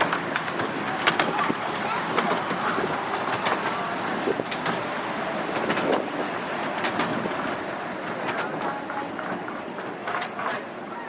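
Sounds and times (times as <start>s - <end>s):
miniature train rumbling: 0.0s - 11.0s
wheels clicking on track: 0.0s - 11.0s
bird chirping: 4.8s - 6.2s.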